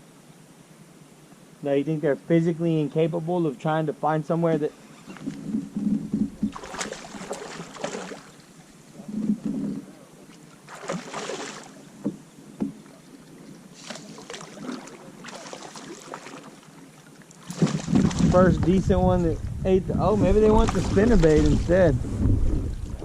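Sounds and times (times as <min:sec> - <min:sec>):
water splashing around kayak: 0:05.3 - 0:23.0.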